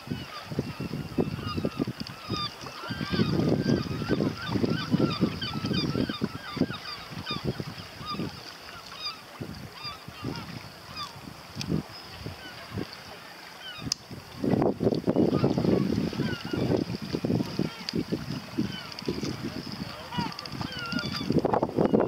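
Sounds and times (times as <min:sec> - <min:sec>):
birds chirping: 0:17.4 - 0:21.3.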